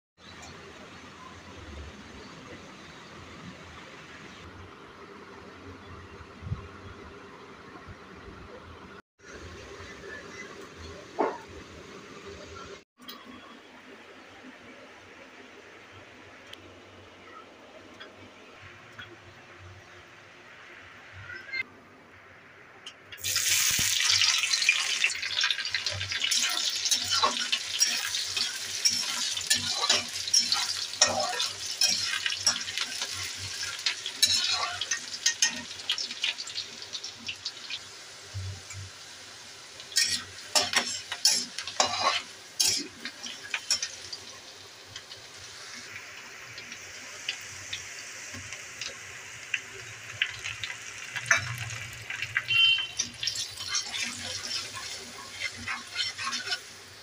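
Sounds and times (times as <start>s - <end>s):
garlic sizzling in hot oil: 23.1s - 57.0s
metal spatula scraping a pan: 25.7s - 36.0s, 39.9s - 44.0s, 51.2s - 57.0s.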